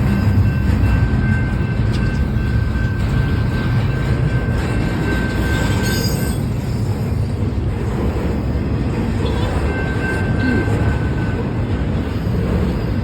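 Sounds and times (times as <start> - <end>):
freight train cars rumbling: 0.0 - 13.0
wheel squeal: 5.2 - 6.9.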